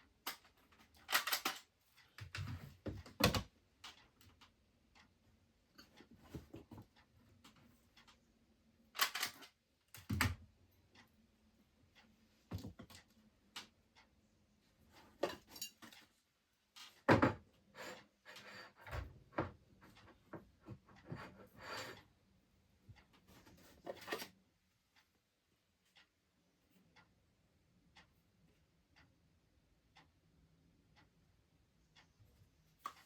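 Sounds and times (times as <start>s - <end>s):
objects knocking and clattering: 17.0s - 17.5s.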